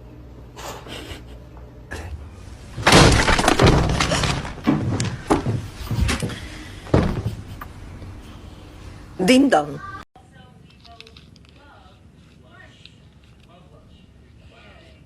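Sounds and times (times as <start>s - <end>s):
dense clattering: 2.6s - 7.6s
loud crash of objects breaking: 2.7s - 5.6s
scattered knocks and thuds: 2.8s - 7.6s.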